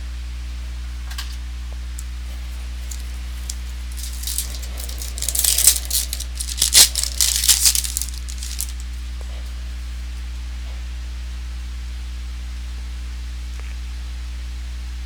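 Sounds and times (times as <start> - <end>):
card pack wrapper tearing: 2.8 - 8.8.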